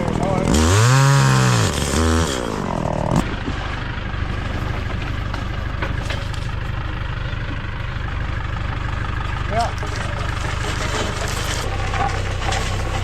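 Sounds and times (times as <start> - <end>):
chainsaw revving: 0.0 - 3.2
motor engine idling: 0.0 - 13.0.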